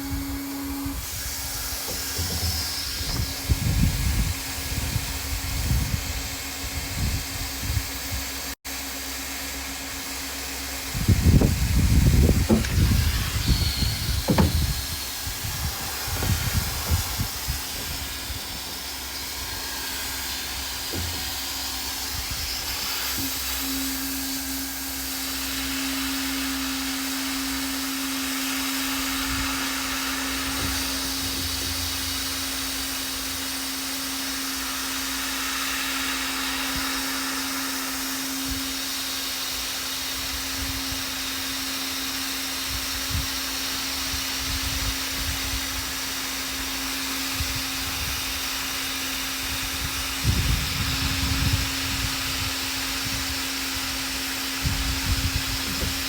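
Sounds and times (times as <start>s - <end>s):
hot-air gun blower hissing: 0.0s - 56.0s
light knocks: 14.2s - 14.8s.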